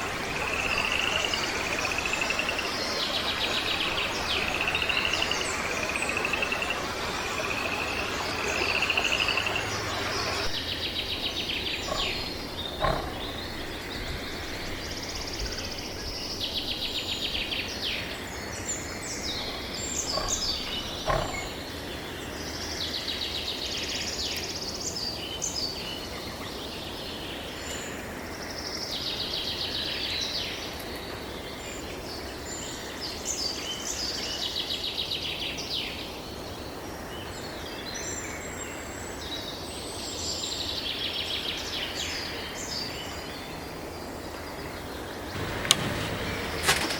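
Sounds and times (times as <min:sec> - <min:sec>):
small birds trilling: 0:00.0 - 0:16.8, 0:17.4 - 0:22.6, 0:41.6 - 0:46.9
background hiss: 0:00.0 - 0:21.8, 0:41.6 - 0:46.9
sharp clicks: 0:45.4 - 0:46.9.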